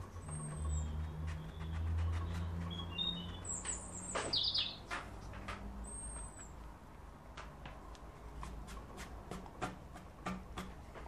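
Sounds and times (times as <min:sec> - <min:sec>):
small bird chirping: 0:00.0 - 0:04.9, 0:05.8 - 0:06.6.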